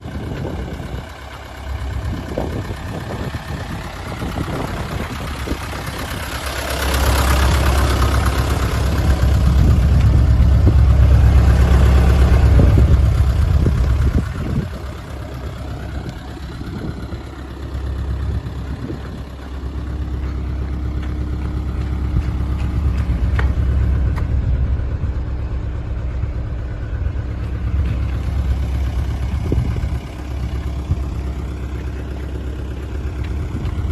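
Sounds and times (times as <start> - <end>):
diesel truck engine idling and revving: 0.0 - 33.9.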